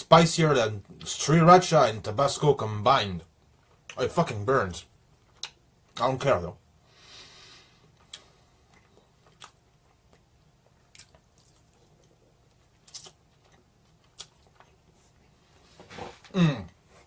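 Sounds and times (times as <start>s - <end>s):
faint chewing: 7.8s - 15.8s.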